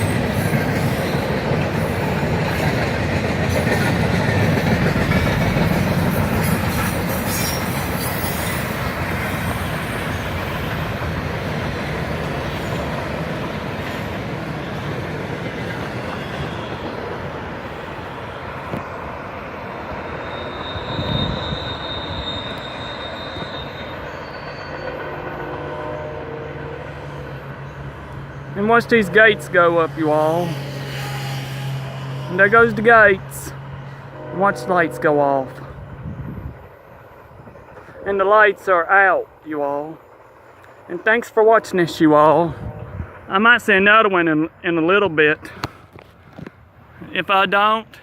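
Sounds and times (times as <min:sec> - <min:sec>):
train cars clattering over rails: 0:00.0 - 0:17.9
high wheel squeal: 0:05.6 - 0:11.0, 0:19.8 - 0:26.1, 0:27.0 - 0:35.7.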